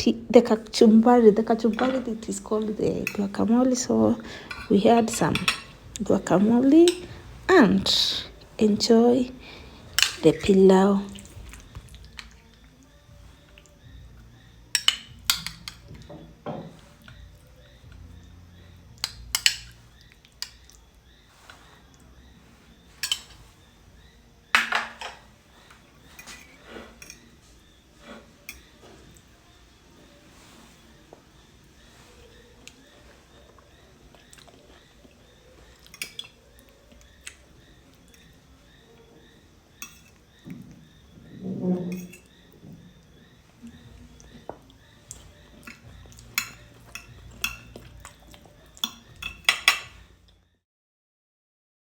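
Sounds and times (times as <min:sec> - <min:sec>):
cutlery scraping and clinking on plate: 0:01.6 - 0:07.3, 0:09.6 - 0:10.5, 0:14.7 - 0:17.3, 0:19.0 - 0:21.8, 0:22.5 - 0:23.8, 0:24.5 - 0:29.3, 0:35.7 - 0:36.4, 0:39.8 - 0:40.2, 0:41.5 - 0:42.6, 0:43.7 - 0:50.3.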